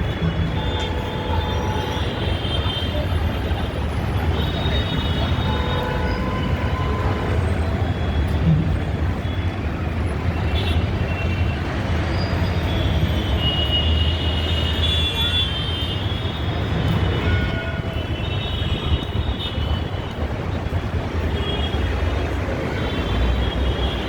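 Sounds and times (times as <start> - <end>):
moving vehicle rumble: 16.0 - 24.0.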